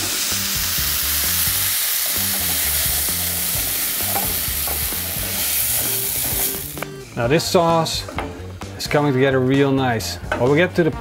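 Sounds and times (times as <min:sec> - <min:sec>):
vegetables sizzling in a pan: 0:00.0 - 0:06.8.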